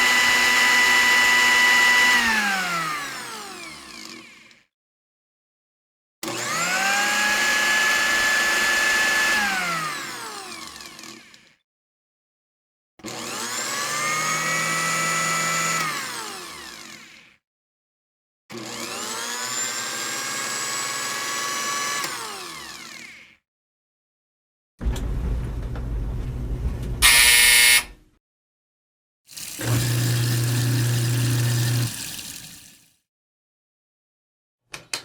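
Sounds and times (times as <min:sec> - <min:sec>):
small electric motor whining: 0:27.0 - 0:27.9.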